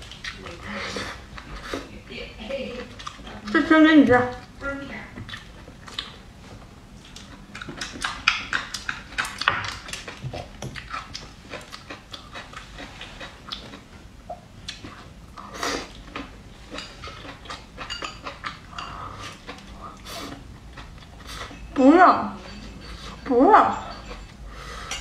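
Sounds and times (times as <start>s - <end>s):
wet chewing clicks and lip smacks: 2.8s - 3.6s, 5.2s - 6.2s, 7.0s - 15.1s.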